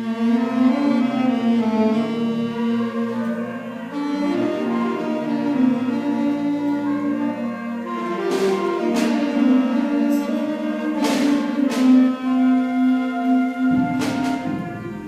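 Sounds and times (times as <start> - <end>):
concert band playing chords: 0.0 - 15.0
struck percussion accents: 7.9 - 15.0.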